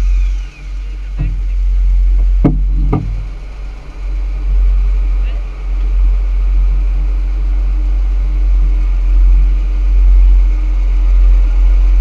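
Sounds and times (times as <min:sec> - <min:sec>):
deep rumble: 0:00.0 - 0:12.0
engine drone: 0:00.0 - 0:12.0.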